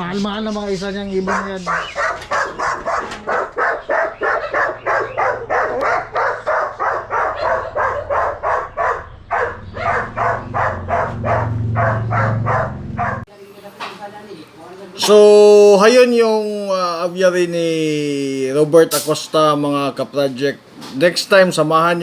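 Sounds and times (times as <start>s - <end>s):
dog barking rapidly: 1.1s - 13.3s
low hum: 7.0s - 13.3s.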